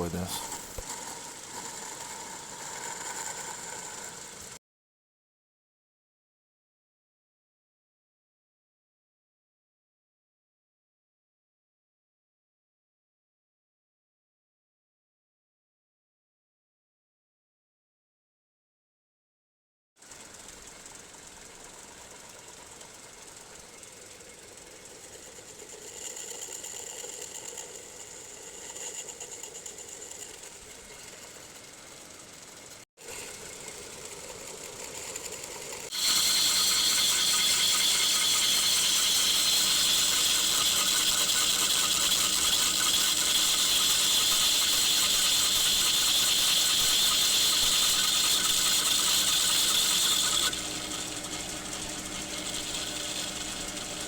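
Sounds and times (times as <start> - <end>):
tool cutting plywood: 0.0 - 4.0, 35.1 - 54.0
machine tool running: 0.0 - 4.6, 20.6 - 54.0.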